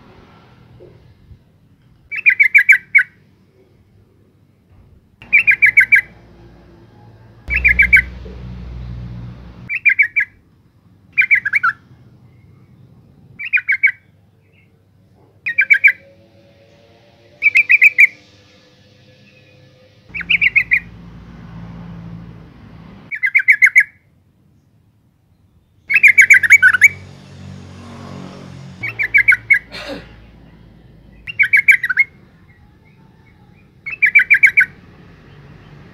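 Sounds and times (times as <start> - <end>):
bird chattering calls: 5.2 - 6.1, 7.5 - 8.2, 20.1 - 20.9, 28.8 - 29.7.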